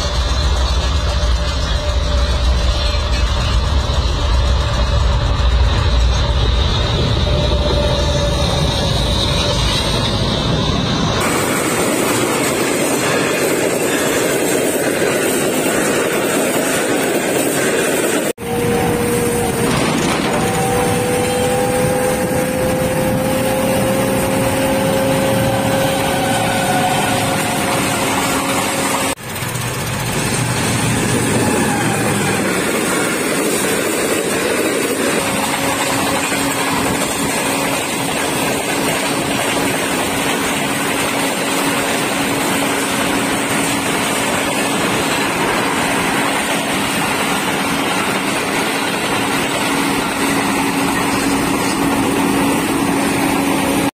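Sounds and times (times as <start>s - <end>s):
passenger train passing: 0.0s - 53.9s
small engine running: 18.4s - 53.9s.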